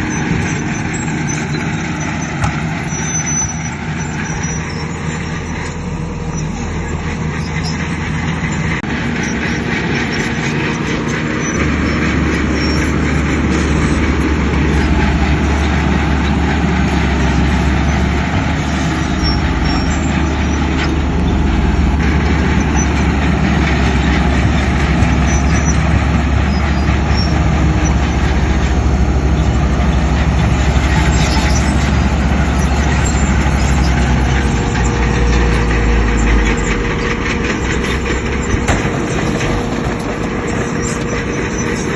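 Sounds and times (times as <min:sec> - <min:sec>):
heavy diesel machinery running: 0:00.0 - 0:41.9.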